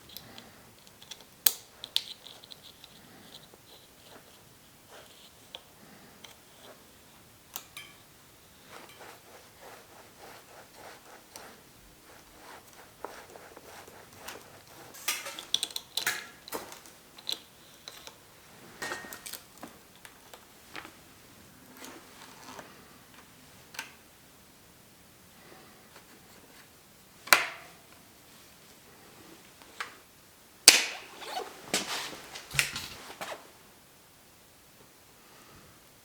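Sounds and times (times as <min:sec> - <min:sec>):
metal parts and tools clinking: 0:07.6 - 0:08.0, 0:14.9 - 0:18.1.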